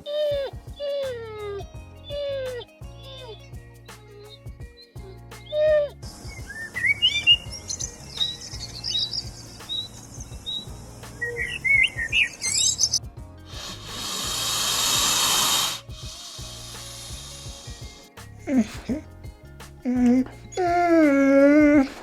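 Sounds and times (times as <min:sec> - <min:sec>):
background music: 0:00.0 - 0:22.0
small birds chirping: 0:00.0 - 0:22.0
loud hiss: 0:05.3 - 0:22.0.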